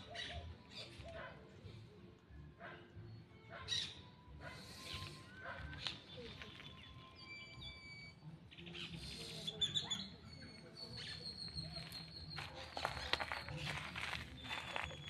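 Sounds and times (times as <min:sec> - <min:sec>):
birds whistling and chirping: 0:00.0 - 0:01.3, 0:03.0 - 0:15.0
footsteps crunching over debris: 0:11.4 - 0:15.0.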